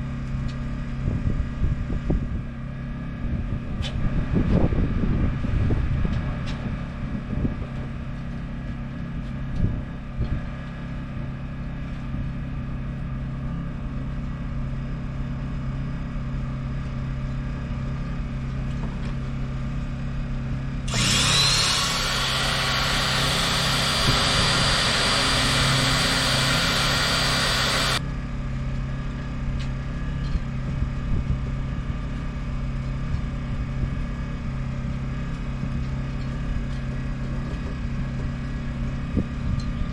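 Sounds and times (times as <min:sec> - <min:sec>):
electric pump motor whine: 0:20.9 - 0:28.0
steady low hum: 0:20.9 - 0:28.0.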